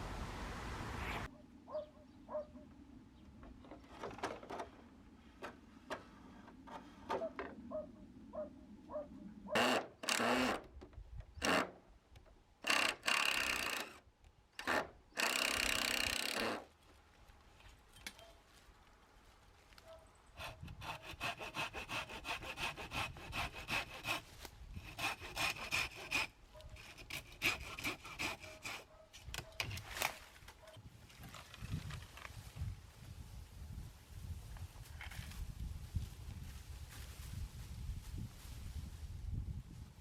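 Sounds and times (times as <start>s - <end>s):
hand saw cutting bamboo: 9.5s - 10.6s, 14.6s - 16.7s, 20.4s - 30.2s.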